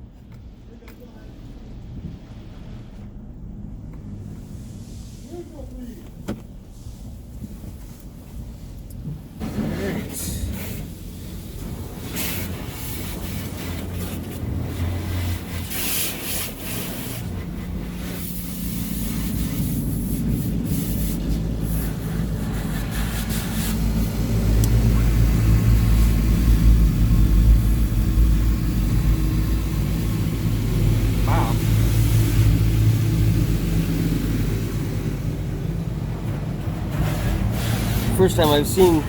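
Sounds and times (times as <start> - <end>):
low rumble: 0.0 - 9.4, 16.5 - 39.0
water spraying on car: 1.3 - 39.0
washer arms scrubbing: 10.5 - 39.0.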